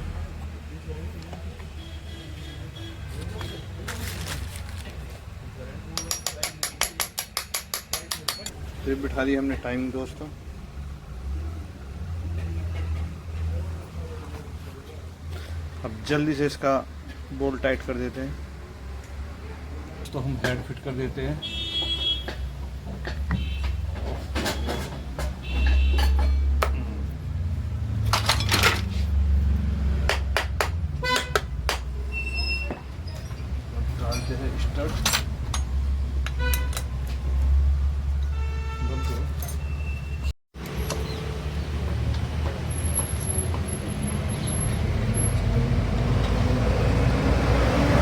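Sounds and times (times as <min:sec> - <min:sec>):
metal tools clinking on engine: 0:05.9 - 0:08.6, 0:28.1 - 0:29.0, 0:33.1 - 0:37.6, 0:39.0 - 0:40.0.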